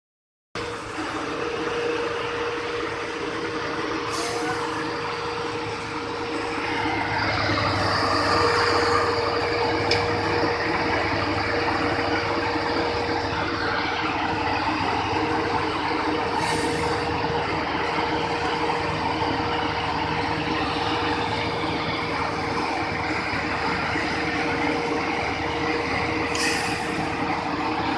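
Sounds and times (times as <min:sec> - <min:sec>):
construction machine engine whine: 0:00.6 - 0:27.9
short hisses: 0:26.3 - 0:27.0.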